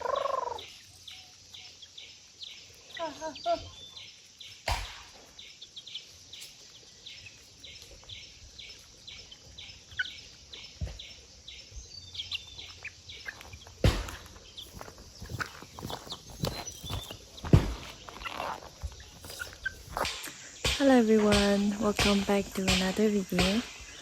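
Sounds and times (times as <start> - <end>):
bird chirping: 0.0 - 24.0
dull thumps: 13.8 - 23.9.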